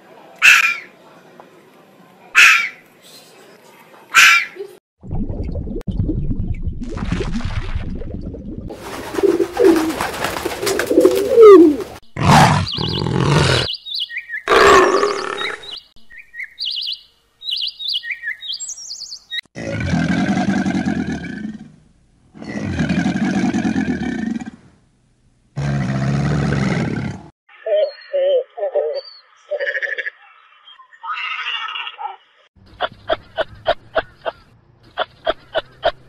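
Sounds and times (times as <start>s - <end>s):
bird chirps: 12.5s - 19.4s, 27.5s - 36.0s
animal growling roars: 19.6s - 21.8s, 22.4s - 24.7s, 25.6s - 27.3s.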